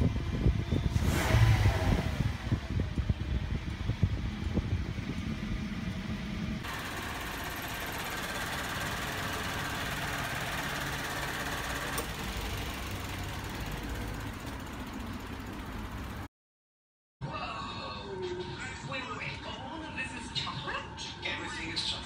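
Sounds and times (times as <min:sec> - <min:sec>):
car engine idling: 0:02.7 - 0:16.3.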